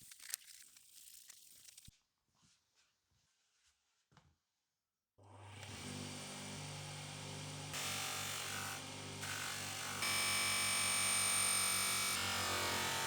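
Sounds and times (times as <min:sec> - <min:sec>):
electric power tool running: 0:05.3 - 0:13.0.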